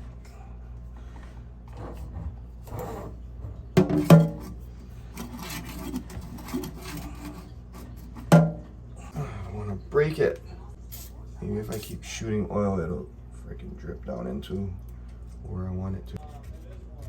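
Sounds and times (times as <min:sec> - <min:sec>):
faucet scraping and rubbing: 0:01.7 - 0:08.4.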